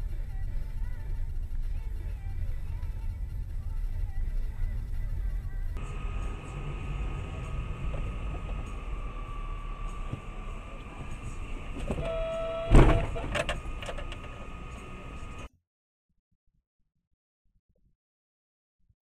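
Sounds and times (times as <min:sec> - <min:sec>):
faint steady whine: 0:00.0 - 0:15.5
vehicle engine rumble: 0:00.0 - 0:15.5
loud thump: 0:11.8 - 0:13.5.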